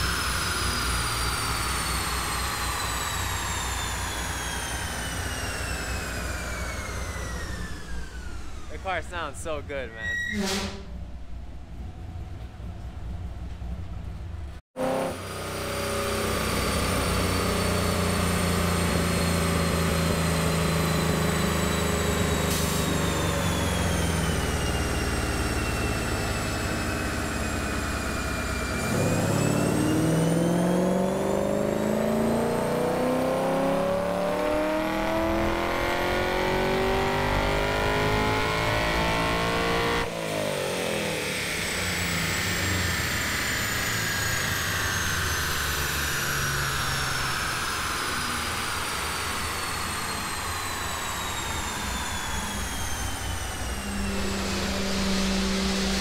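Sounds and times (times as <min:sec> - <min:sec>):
engine revving on a dyno: 0:00.0 - 0:09.6, 0:14.7 - 0:56.0.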